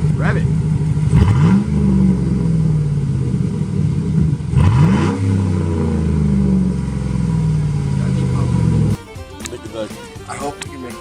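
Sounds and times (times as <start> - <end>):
straight-piped truck engine revving: 0.0 - 9.0.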